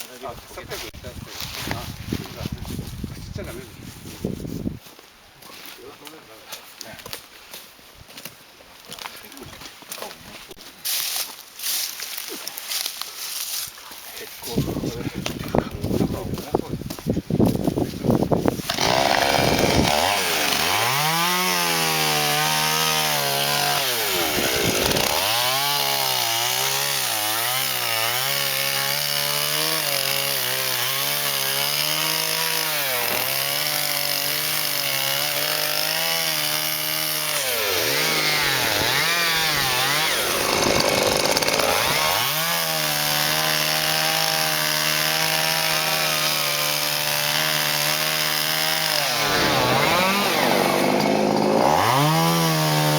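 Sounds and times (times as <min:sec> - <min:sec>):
chainsaw running at high revs: 0:18.6 - 0:52.9.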